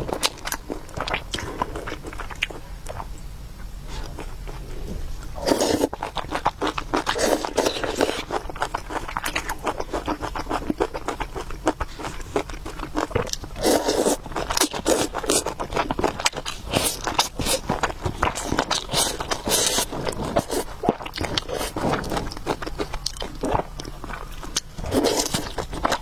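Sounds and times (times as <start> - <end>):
person eating noodle soup: 0.0 - 3.1, 3.9 - 26.0
slurping: 4.0 - 10.4, 12.0 - 15.6, 16.6 - 23.7.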